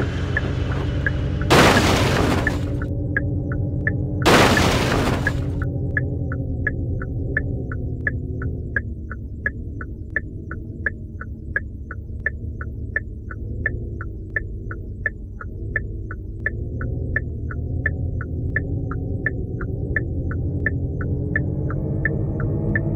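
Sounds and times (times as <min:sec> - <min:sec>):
low synth drone: 0:00.0 - 0:22.9
clock tick-tock: 0:02.8 - 0:04.2, 0:05.5 - 0:22.9.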